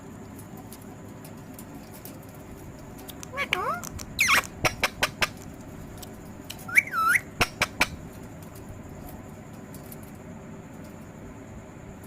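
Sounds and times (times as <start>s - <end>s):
parrot whistling: 3.3s - 5.4s, 6.7s - 8.0s.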